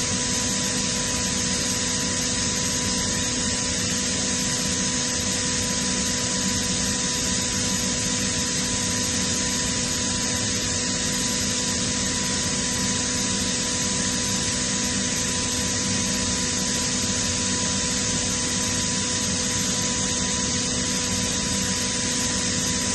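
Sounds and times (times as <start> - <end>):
air compressor running: 0.0 - 22.9.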